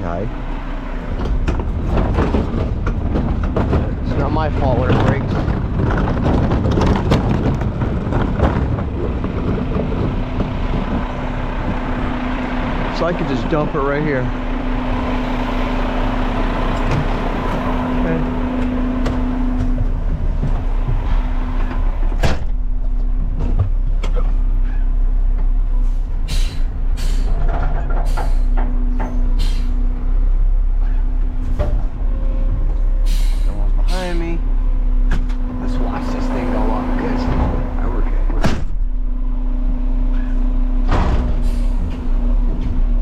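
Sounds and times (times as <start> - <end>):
garbage truck engine rumbling: 0.0 - 43.0
short air hisses: 26.3 - 27.3, 29.4 - 29.8, 33.0 - 33.5.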